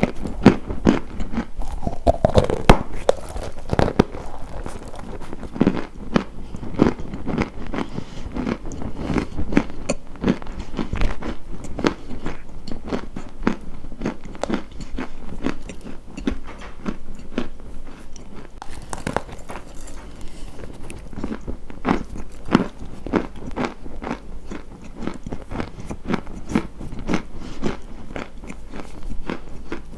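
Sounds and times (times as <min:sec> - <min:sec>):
crunchy food being chewed: 0:00.0 - 0:29.9.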